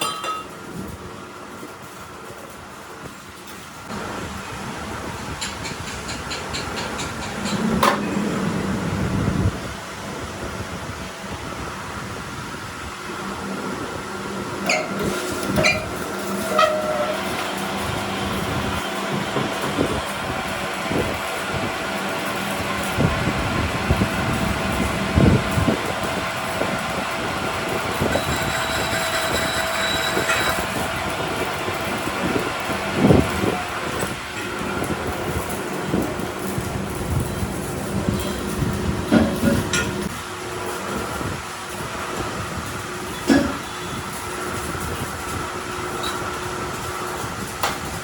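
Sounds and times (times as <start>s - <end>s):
short ringing clinks: 0.0s - 0.6s
workshop machinery running: 0.0s - 48.0s
thin high whine: 24.7s - 34.9s.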